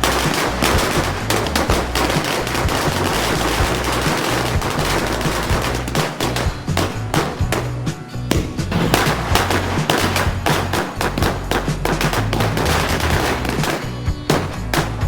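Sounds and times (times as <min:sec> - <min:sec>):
firecrackers popping rapidly: 0:00.0 - 0:15.0.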